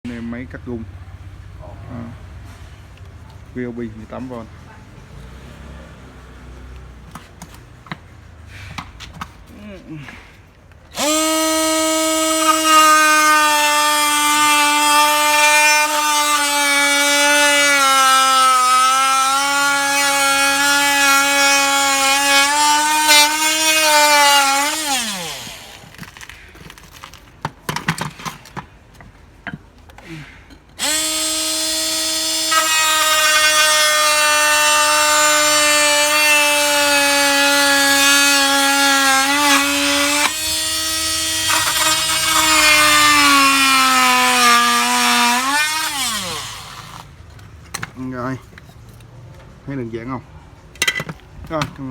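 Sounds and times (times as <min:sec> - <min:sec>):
oscillating multi-tool buzzing: 0:11.0 - 0:25.8, 0:30.8 - 0:47.1.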